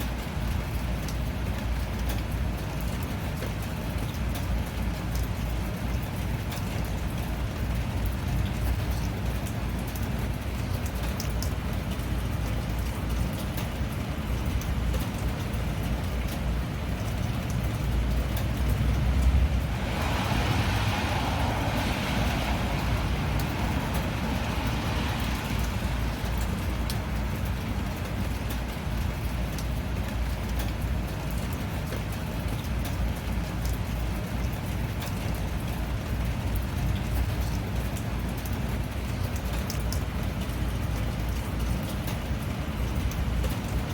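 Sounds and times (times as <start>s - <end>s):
steady rain: 0.0s - 43.9s
deep continuous rumble: 16.7s - 27.8s.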